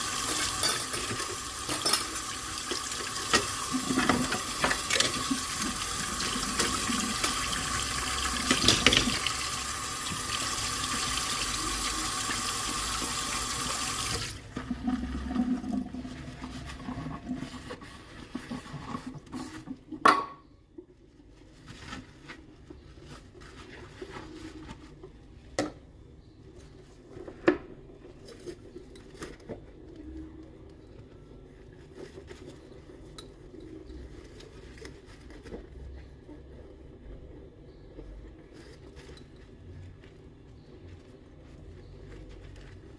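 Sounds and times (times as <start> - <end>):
dishes clinking: 0.3 - 2.2
tap running into sink: 2.7 - 11.6.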